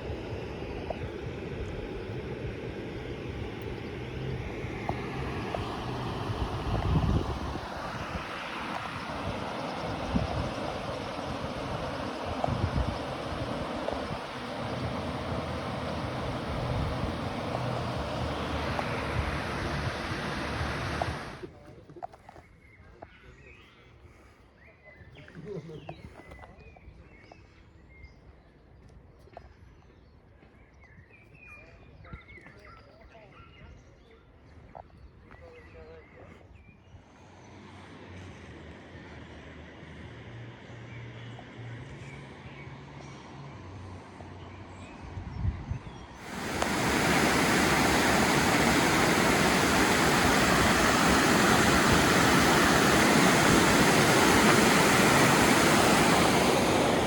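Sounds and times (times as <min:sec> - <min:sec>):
low steady rumble: 0:00.0 - 0:21.5, 0:46.2 - 0:57.0
rushing water: 0:00.0 - 0:21.5, 0:46.2 - 0:57.0.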